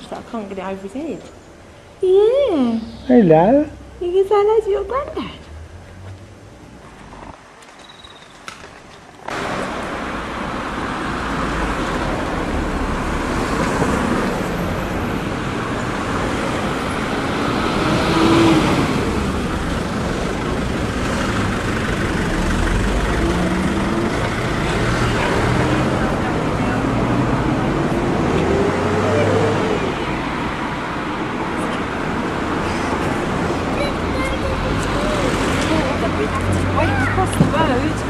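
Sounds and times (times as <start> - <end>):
road traffic noise: 0.0 - 38.0.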